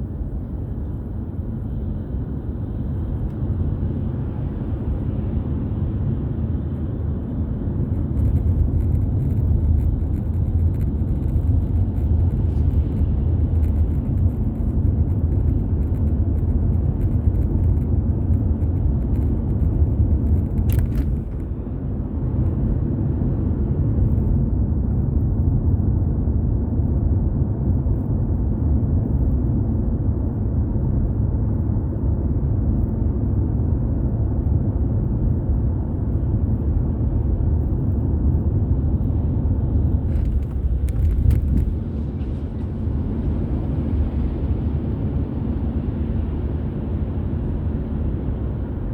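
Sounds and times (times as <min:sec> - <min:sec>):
car driving on road: 0:00.0 - 0:48.9.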